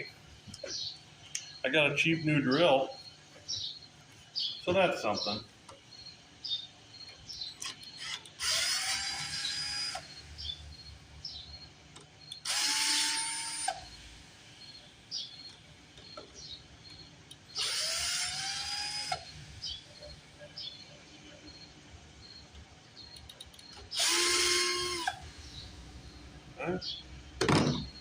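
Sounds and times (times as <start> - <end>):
electric drill motor whining: 7.9 - 10.3, 12.4 - 14.8, 17.6 - 19.7, 23.8 - 25.7.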